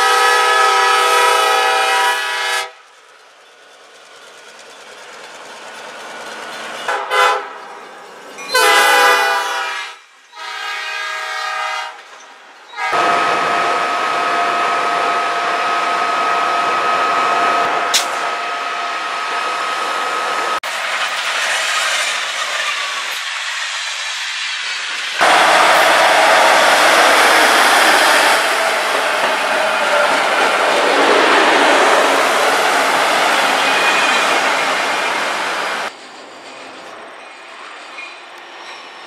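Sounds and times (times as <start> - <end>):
diesel locomotive horn blasts: 0.0 - 2.8, 6.9 - 7.6, 8.5 - 12.1, 12.7 - 19.1, 25.2 - 31.9
train wheels rumbling on rails: 0.0 - 10.4, 11.8 - 39.0.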